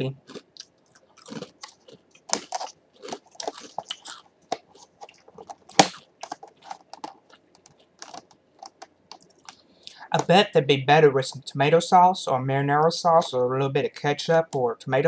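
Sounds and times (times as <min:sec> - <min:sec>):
person chewing crunchy cheese crisp: 0:00.0 - 0:10.0.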